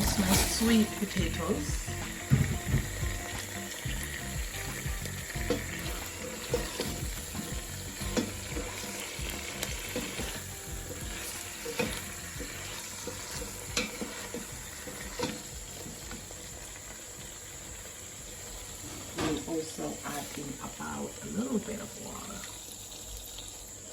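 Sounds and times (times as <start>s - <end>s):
spoon scraping a pan: 0.0s - 16.3s
food sizzling in hot oil: 0.0s - 23.9s.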